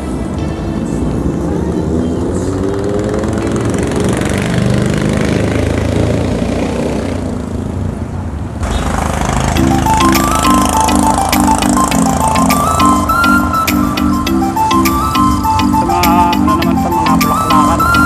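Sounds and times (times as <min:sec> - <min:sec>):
music: 0:00.0 - 0:03.2, 0:09.6 - 0:18.0
road and wind noise: 0:00.0 - 0:18.0
motorcycle engine accelerating: 0:01.2 - 0:07.9, 0:08.6 - 0:15.6.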